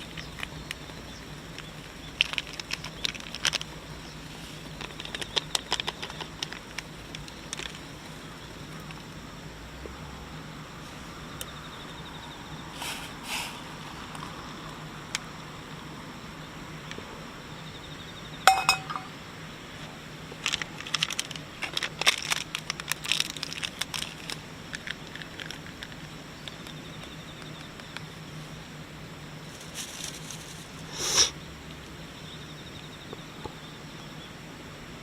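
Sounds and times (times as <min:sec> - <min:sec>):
hard objects clinking together: 0:18.5 - 0:19.1
sharp ringing clink: 0:18.5 - 0:19.1.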